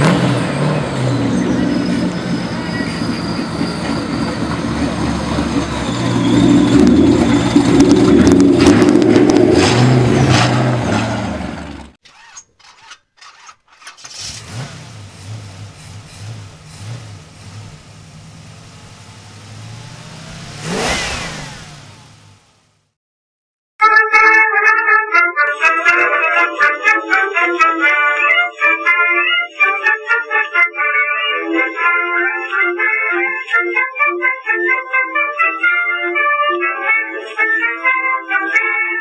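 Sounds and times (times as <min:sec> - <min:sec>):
car engine revving: 0:00.0 - 0:12.0, 0:14.0 - 0:23.0
engine idling: 0:00.3 - 0:09.4, 0:14.2 - 0:22.9.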